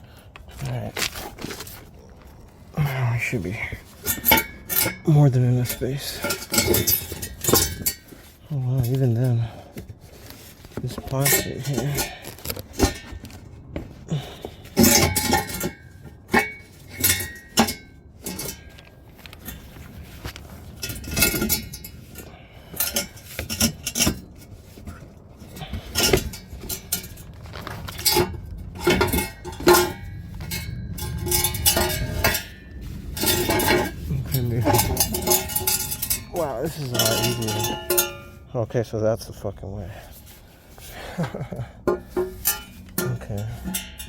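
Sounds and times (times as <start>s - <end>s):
metallic clanks and scrapes: 0.0s - 38.5s, 39.4s - 44.0s.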